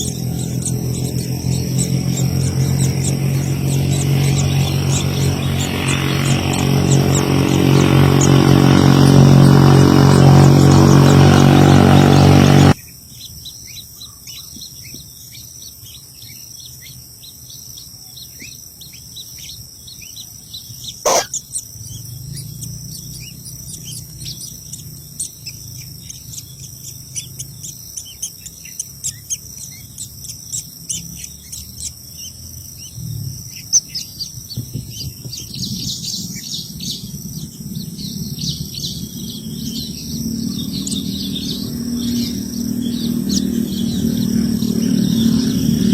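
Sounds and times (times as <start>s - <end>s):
bird chirps: 0.0s - 45.9s
high insect drone: 0.0s - 45.9s
loud sharp bird call: 20.8s - 21.6s.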